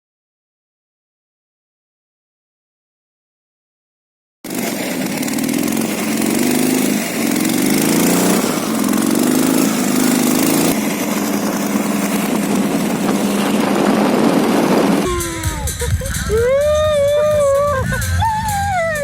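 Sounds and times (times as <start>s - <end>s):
motorcycle engine revving: 4.5s - 19.0s.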